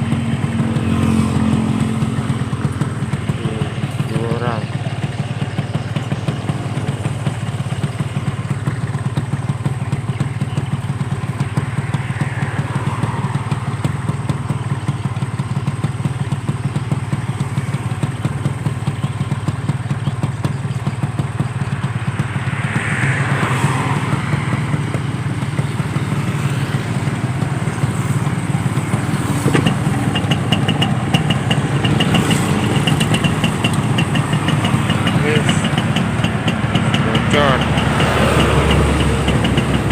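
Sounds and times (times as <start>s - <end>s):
two-stroke motorcycle engine running: 0.0s - 39.9s
fast ticking: 24.5s - 39.9s.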